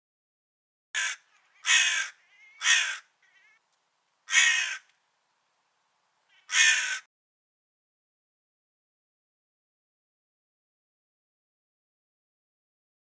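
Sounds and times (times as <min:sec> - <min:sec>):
crow cawing: 0:01.0 - 0:03.6, 0:04.3 - 0:04.9, 0:06.3 - 0:07.1.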